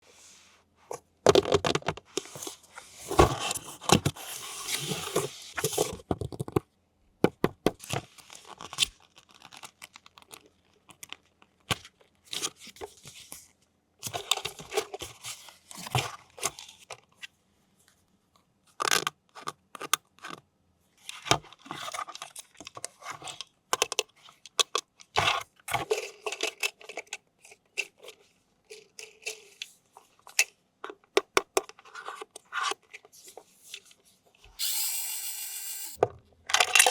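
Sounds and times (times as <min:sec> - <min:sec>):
packaging tearing and crinkling: 0:08.5 - 0:10.4.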